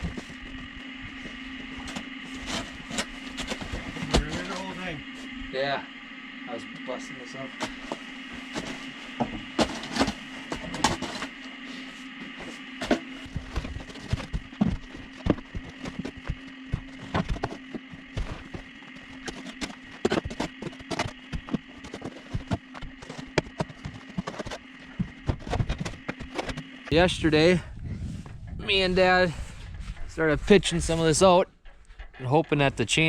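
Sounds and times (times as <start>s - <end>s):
steady hum: 0.0s - 33.0s
hand tool breaking frozen silage: 9.5s - 11.6s, 12.4s - 26.6s.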